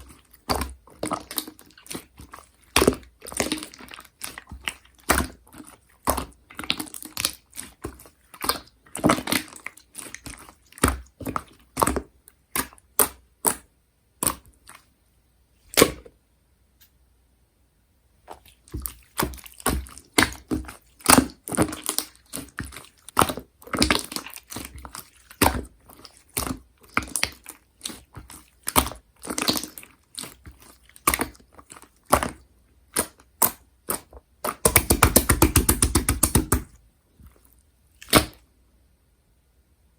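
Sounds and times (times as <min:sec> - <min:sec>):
slime squeezed with wet clicks: 0:38.0 - 0:38.4.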